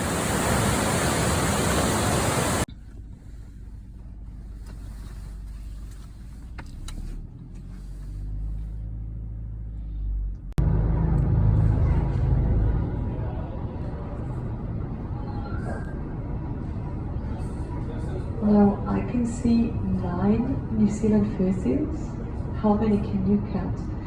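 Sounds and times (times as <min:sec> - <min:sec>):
waterfall rushing: 0:00.0 - 0:02.7
boat engine drone: 0:00.0 - 0:05.0, 0:09.8 - 0:24.0.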